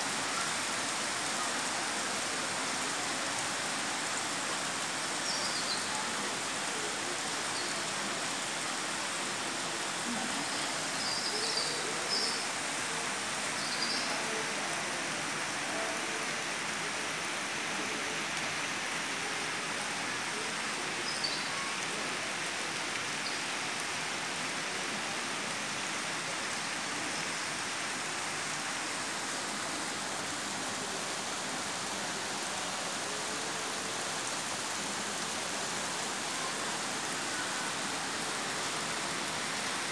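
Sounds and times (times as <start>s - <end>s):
torrential rain pouring: 0.0s - 39.9s.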